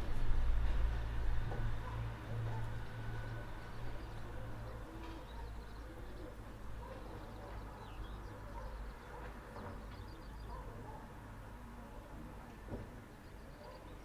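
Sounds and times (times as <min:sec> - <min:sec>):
birds chirping: 0:01.8 - 0:11.2, 0:12.9 - 0:14.0.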